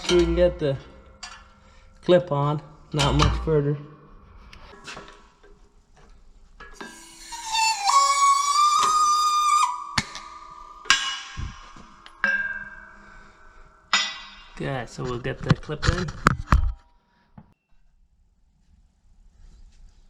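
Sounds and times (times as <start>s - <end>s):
ringing metal tone: 0.0s - 5.3s, 6.6s - 14.6s
sharp metal clanks: 0.0s - 5.6s, 10.0s - 15.1s.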